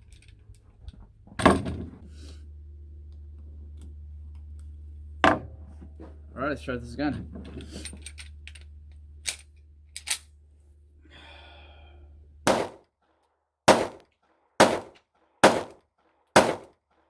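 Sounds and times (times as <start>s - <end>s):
gun handling clicks: 7.6s - 10.3s
gunshots: 12.5s - 12.8s, 13.7s - 14.0s, 14.6s - 15.8s, 16.4s - 16.7s.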